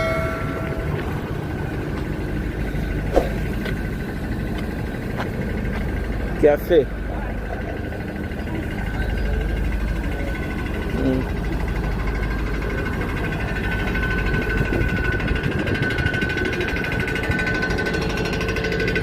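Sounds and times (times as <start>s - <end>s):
high machine whine: 0.0s - 19.0s
machine humming: 0.0s - 19.0s.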